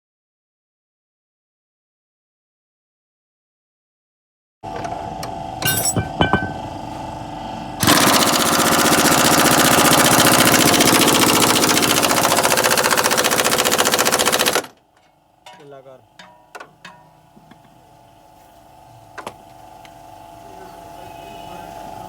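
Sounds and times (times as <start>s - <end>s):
metal clinks: 5.6s - 6.7s
pneumatic impact wrench rattling: 7.8s - 14.8s.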